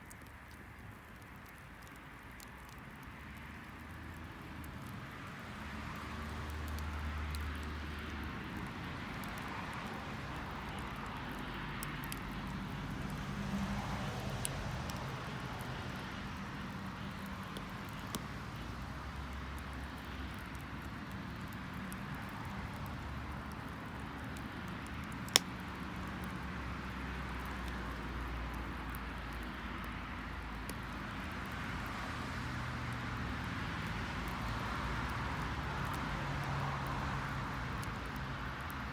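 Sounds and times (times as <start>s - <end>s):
bonfire crackling: 0.0s - 38.9s
low fire rumble: 0.0s - 38.9s
sharp pop of burning wood: 25.1s - 25.9s.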